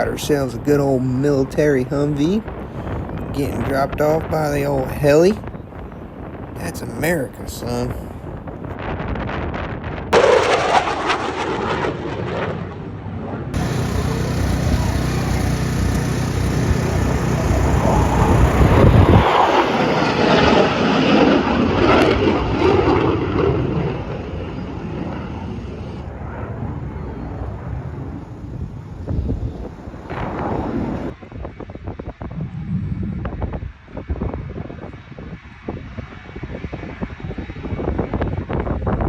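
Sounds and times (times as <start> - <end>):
military aircraft engine: 10.2 - 32.9.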